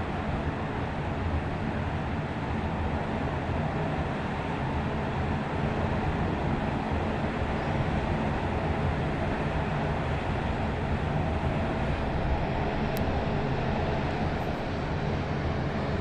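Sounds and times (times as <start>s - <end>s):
ship engines low rumble and hum: 0.0s - 16.0s.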